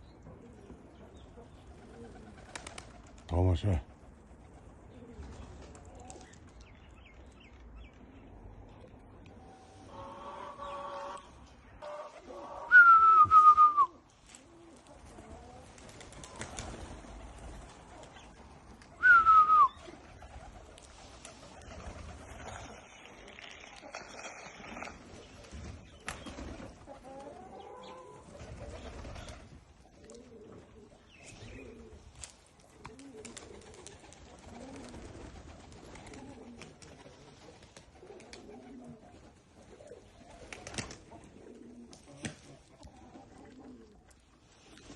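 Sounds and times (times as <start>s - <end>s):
pigeons cooing: 0.0s - 3.2s, 4.2s - 6.5s, 14.2s - 44.9s
person whistling loudly: 12.7s - 13.9s, 19.0s - 19.8s.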